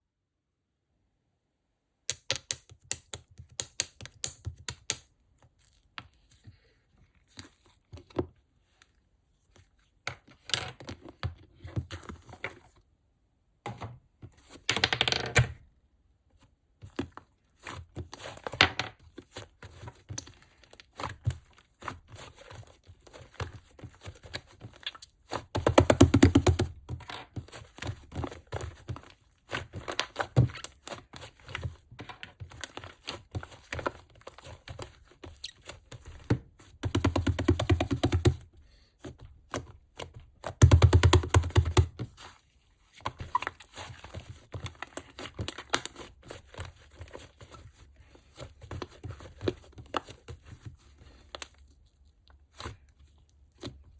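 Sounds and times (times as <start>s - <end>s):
slime squishing by hand: 16.4s - 53.9s.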